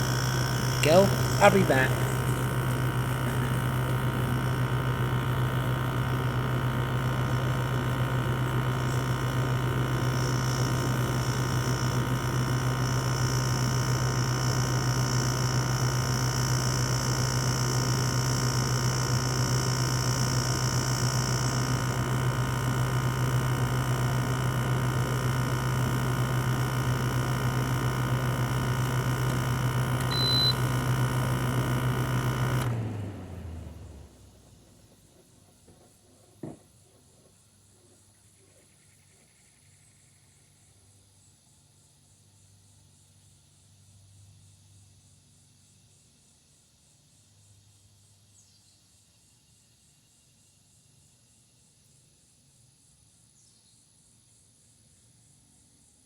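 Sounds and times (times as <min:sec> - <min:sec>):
air conditioner humming: 0:00.0 - 0:14.0, 0:22.0 - 0:35.1
short high beep: 0:30.1 - 0:30.7.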